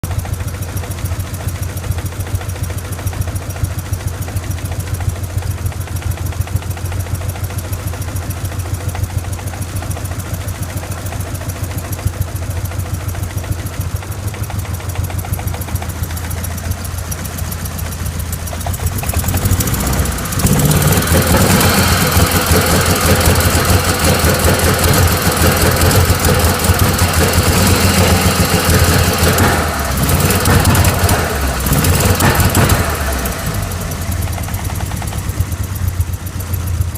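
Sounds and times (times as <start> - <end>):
car engine idling roughly: 0.0 - 36.9.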